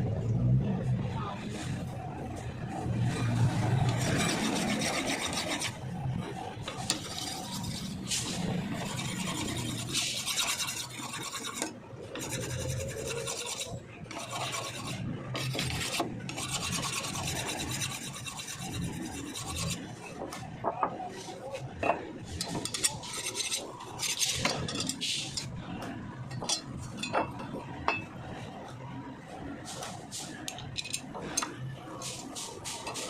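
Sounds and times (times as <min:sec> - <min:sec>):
blade being sharpened rasping: 0:06.8 - 0:19.8.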